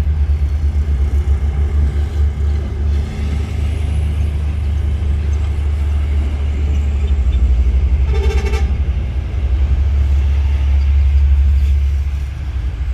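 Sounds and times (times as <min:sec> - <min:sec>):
freight train rumbling past: 0:00.0 - 0:12.9
train horn toot: 0:08.0 - 0:09.0.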